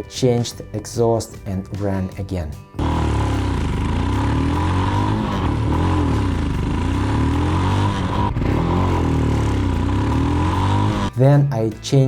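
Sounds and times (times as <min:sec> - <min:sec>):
motorcycle exhaust note: 0:02.8 - 0:11.1.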